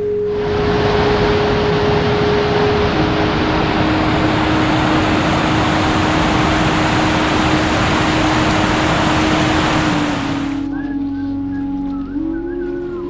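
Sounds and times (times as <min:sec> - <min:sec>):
held musical tone: 0:00.0 - 0:11.2
heavy rain: 0:00.2 - 0:10.7.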